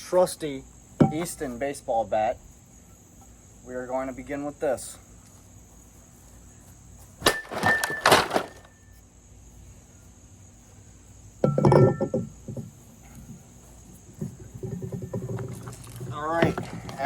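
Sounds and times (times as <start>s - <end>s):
metal bat hitting plastic: 7.2s - 8.6s.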